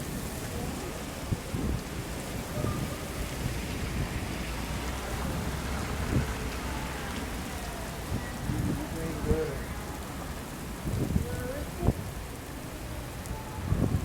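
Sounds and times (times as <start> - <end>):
heavy rain falling: 0.0 - 14.0
thunder rumbling: 0.0 - 14.0.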